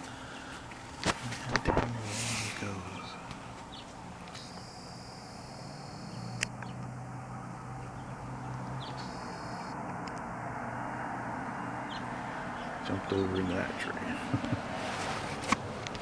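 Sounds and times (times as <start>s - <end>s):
steady low hum: 0.0s - 15.3s
faint bird chirps: 2.7s - 6.8s, 7.8s - 9.8s
sharp click: 6.2s - 6.8s.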